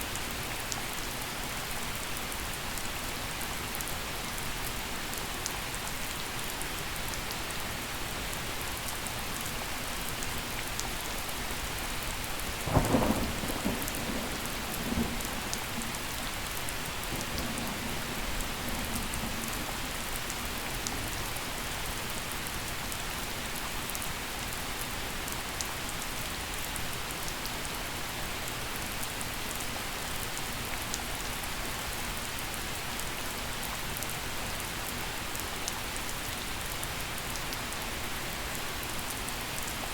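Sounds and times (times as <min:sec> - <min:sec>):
gentle steady rain: 0:00.0 - 0:39.9
thunder crack and rumble: 0:12.4 - 0:21.2.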